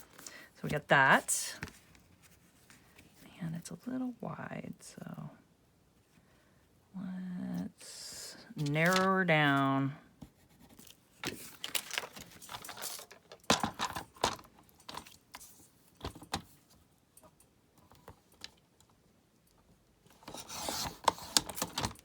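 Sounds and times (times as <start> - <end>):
paper rustling and tapping: 8.6 - 9.1, 11.2 - 15.1.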